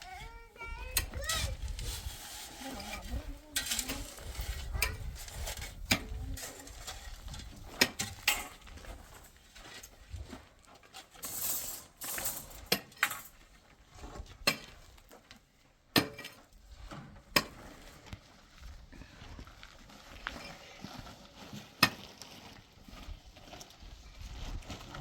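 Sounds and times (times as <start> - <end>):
low scraping and rustling: 0.0 - 15.4.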